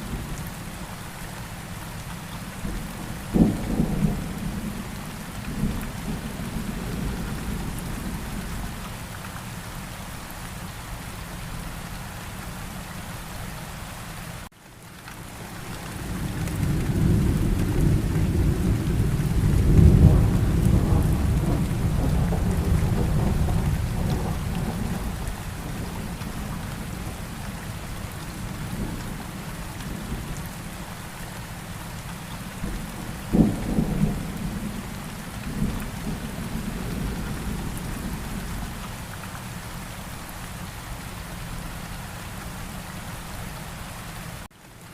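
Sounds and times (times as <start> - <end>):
steady rainfall: 0.0 - 44.9
low roll of thunder: 2.6 - 8.8, 16.0 - 30.4, 32.6 - 38.8
sharp thunderclap: 32.6 - 34.9.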